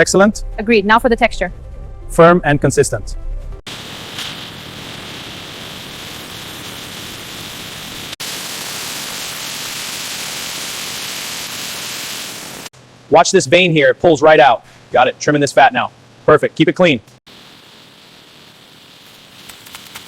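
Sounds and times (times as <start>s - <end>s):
steady static hiss: 3.7s - 20.0s.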